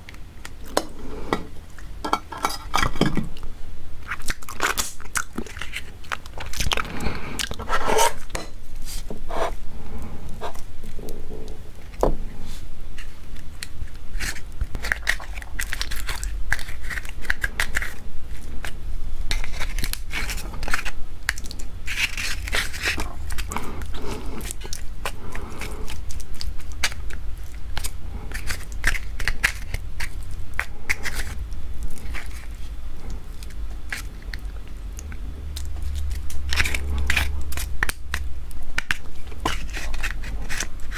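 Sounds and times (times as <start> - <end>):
low steady hum: 0.0 - 40.9
crab shell crunching: 4.0 - 8.4, 13.0 - 40.9
person biting and chewing: 4.0 - 8.4, 13.0 - 40.9.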